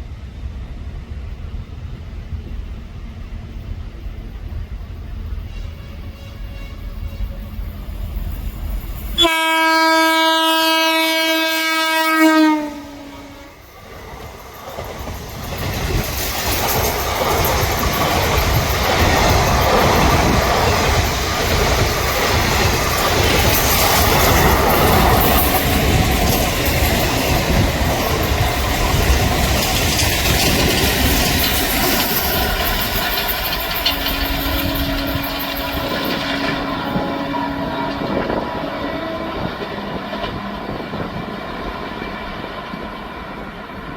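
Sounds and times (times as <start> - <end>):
train rumbling and clattering past: 0.0 - 43.9
locomotive horn blast: 5.5 - 7.7, 9.2 - 13.7, 33.7 - 39.8.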